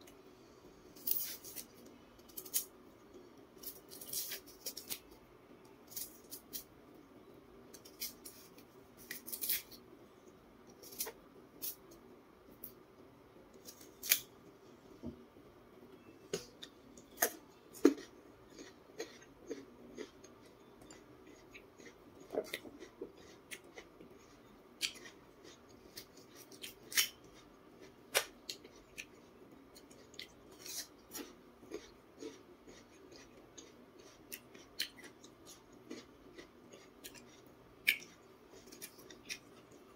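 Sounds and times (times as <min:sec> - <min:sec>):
crunching and chewing: 0:01.0 - 0:05.2, 0:07.7 - 0:09.8, 0:16.3 - 0:39.9
knife scraping peel: 0:07.8 - 0:09.8.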